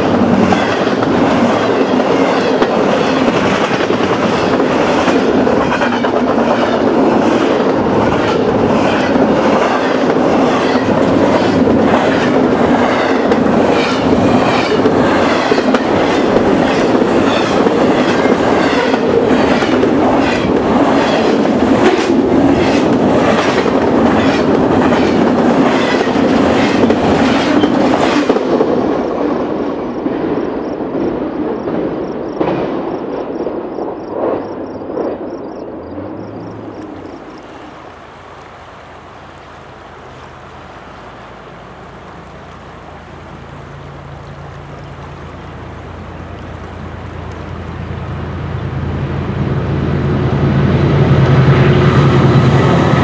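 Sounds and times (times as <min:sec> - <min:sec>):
freight train wheels clickety-clack: 0:00.0 - 0:35.6.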